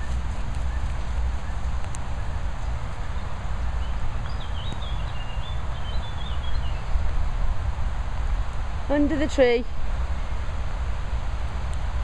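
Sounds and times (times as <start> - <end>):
bird chirping: 0.0 - 7.1
rain: 0.0 - 12.0
wind rumbling on microphone: 0.0 - 12.0.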